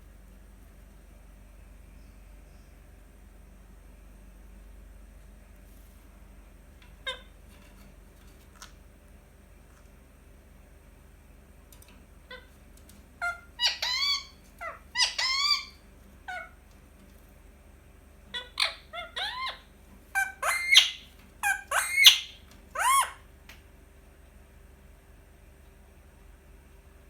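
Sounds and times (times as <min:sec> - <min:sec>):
parakeet calling: 0:07.0 - 0:07.4, 0:12.3 - 0:12.6, 0:13.2 - 0:16.6, 0:18.3 - 0:23.2.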